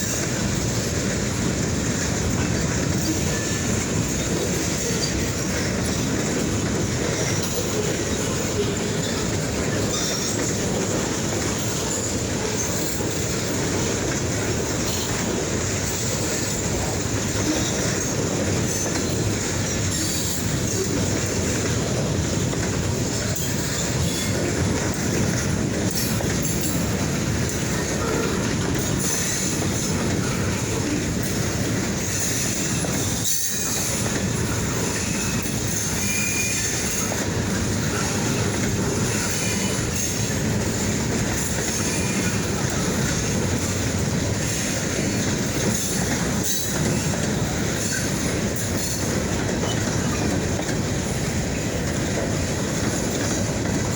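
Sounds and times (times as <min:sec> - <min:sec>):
freight train wheels on track: 0:00.0 - 0:53.9
faint wheel squeal: 0:34.9 - 0:37.2.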